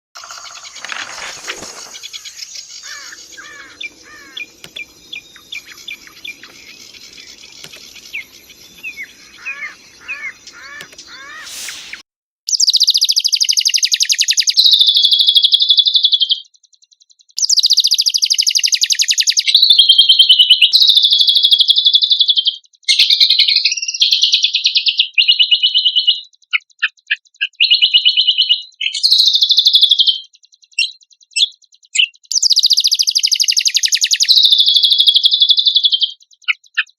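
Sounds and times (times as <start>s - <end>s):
songbird buzzy trills: 0.2s - 12.0s
faint bird chirps: 0.2s - 15.2s.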